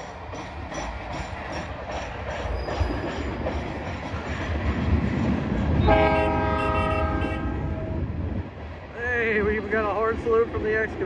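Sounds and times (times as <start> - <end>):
freight train rumbling: 0.0 - 11.0
horn sounding: 5.8 - 7.8.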